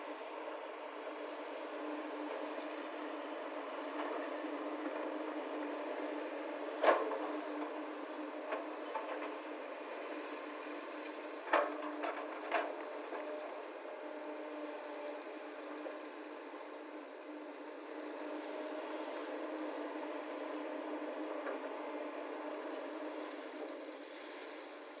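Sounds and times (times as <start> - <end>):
excavator diesel engines running: 0.1 - 25.0.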